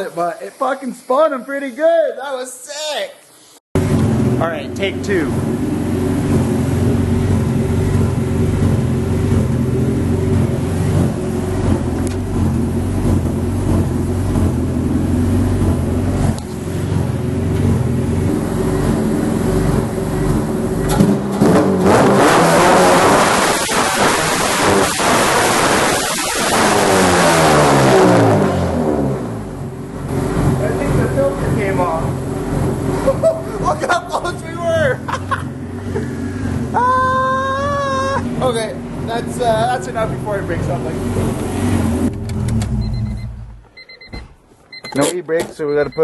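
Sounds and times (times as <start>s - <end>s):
car engine revving: 3.8s - 43.7s
tyres squealing: 36.7s - 38.6s.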